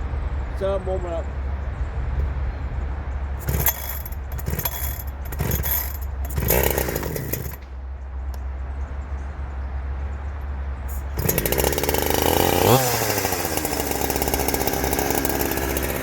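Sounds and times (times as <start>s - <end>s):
chainsaw idling and revving: 3.4s - 7.7s, 10.9s - 16.0s.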